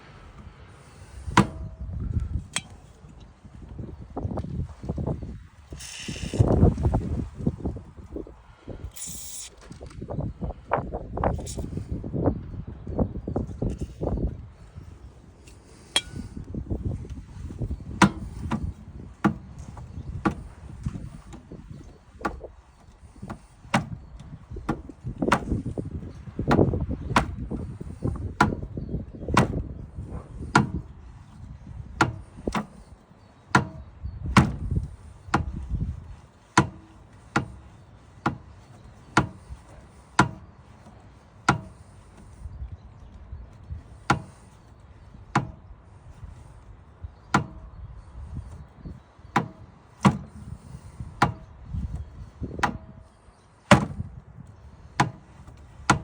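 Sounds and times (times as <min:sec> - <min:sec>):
low rumbling handling noise: 0:00.0 - 0:56.0
sharp ringing metallic knocks: 0:15.9 - 0:16.3.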